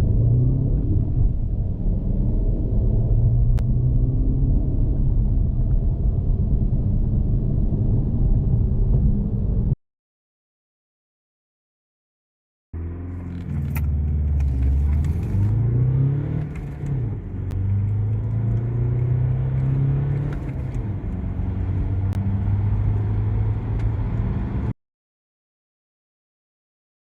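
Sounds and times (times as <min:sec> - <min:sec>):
car engine accelerating hard: 0:12.8 - 0:24.7.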